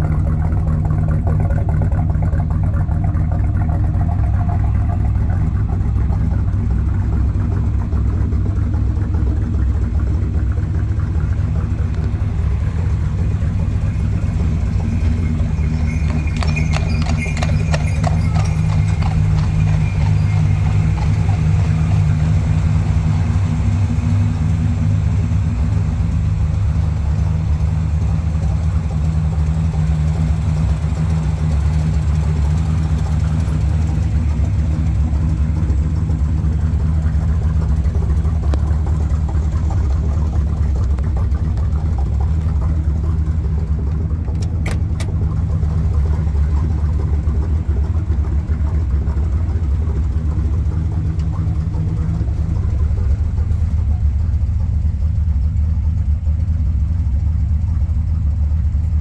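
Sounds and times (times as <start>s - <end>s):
car engine idling: 0.0s - 59.0s
clicks: 43.8s - 45.5s.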